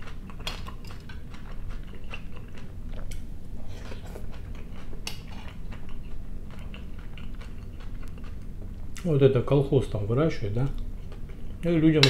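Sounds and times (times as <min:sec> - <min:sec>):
person chewing with wet mouth sounds: 0:00.0 - 0:09.1.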